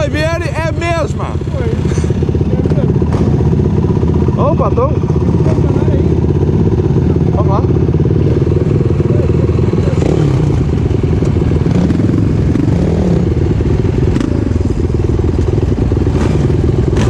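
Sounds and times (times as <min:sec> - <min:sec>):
single-cylinder engine running: 0:00.0 - 0:17.0.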